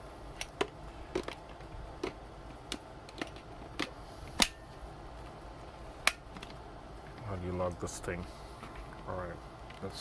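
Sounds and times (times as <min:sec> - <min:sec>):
plastic parts clicking and tapping: 0:00.4 - 0:04.6.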